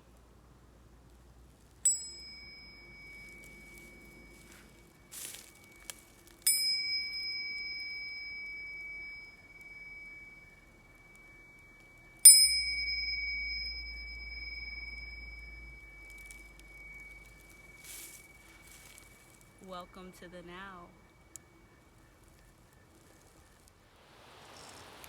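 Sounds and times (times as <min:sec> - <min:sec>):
small metal bell ringing: 0:01.8 - 0:20.9.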